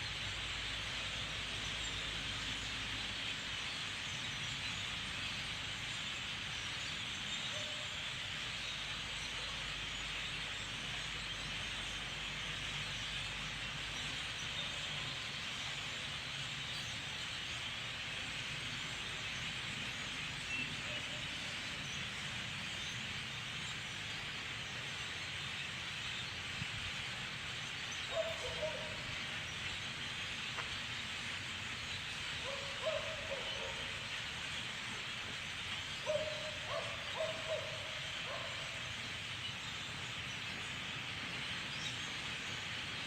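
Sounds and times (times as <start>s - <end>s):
large flock of birds calling: 27.0s - 30.7s, 31.8s - 43.0s
loud low bird calls: 32.0s - 42.8s.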